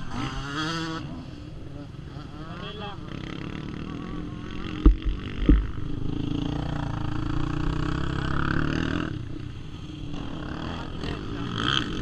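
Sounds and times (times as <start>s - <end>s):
motocross bike engine running: 2.2s - 9.1s
low thumps: 4.8s - 6.1s.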